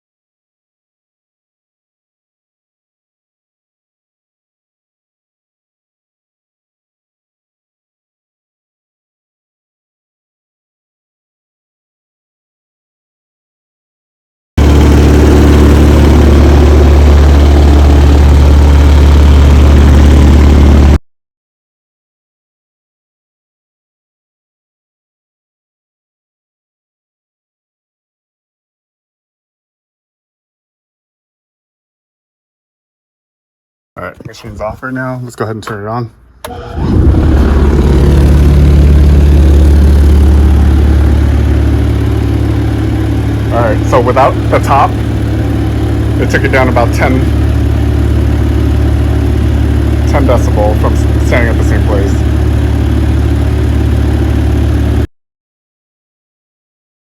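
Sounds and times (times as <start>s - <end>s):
vibratory tumbler humming: 14.6s - 20.9s, 36.5s - 55.0s.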